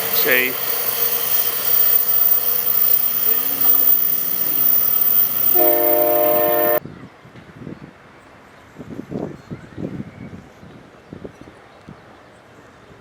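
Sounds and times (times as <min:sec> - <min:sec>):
passenger train rumbling by: 0:00.0 - 0:07.9
train air horn chord: 0:05.3 - 0:06.8.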